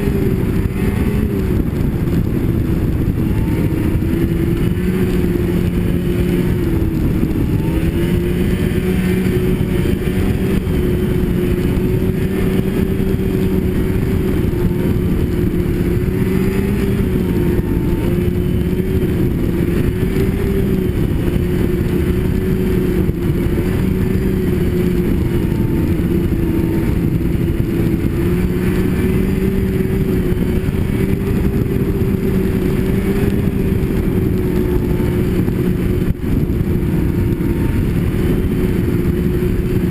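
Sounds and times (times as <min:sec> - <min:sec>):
snowmobile engine running: 0:00.0 - 0:39.9
track and wind rushing: 0:00.0 - 0:39.9.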